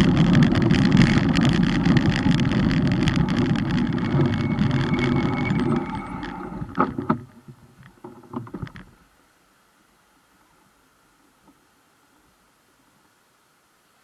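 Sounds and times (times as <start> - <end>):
wind rush from moving bike: 0.0 - 7.2
knocks and clicks: 0.0 - 7.3.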